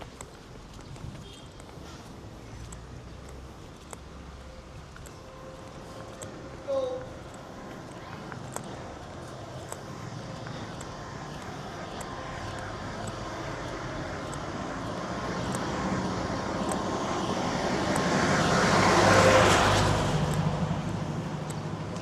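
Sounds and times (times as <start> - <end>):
road noise: 0.0 - 22.0
vehicle engine passing by: 12.2 - 22.0.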